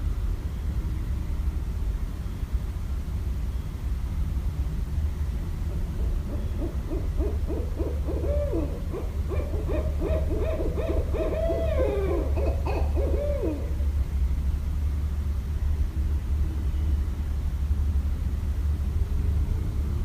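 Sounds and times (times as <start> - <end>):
owl hooting: 6.0 - 14.0.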